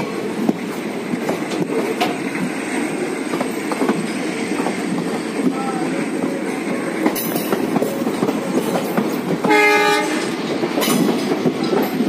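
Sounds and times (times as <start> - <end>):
passenger train running: 0.0 - 12.0
locomotive horn blast: 9.4 - 10.4.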